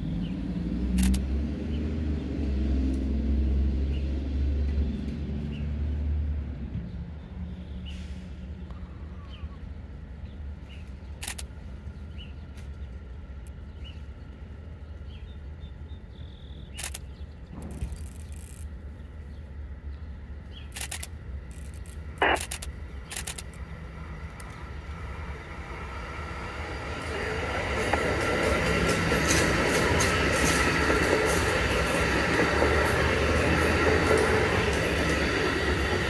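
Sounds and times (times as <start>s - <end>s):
train approaching rumble: 0.0s - 36.0s
sharp clicks: 1.0s - 1.2s, 11.2s - 11.5s, 16.7s - 18.7s, 20.7s - 23.7s.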